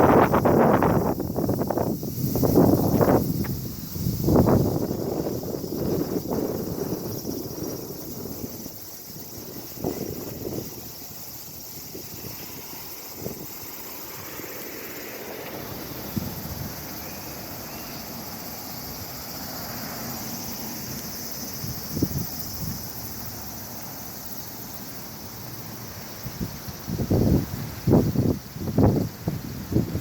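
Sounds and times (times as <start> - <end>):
wind buffeting microphone: 0.0 - 13.8, 15.7 - 17.2, 21.3 - 23.2, 26.2 - 30.0
distant traffic: 12.2 - 26.2.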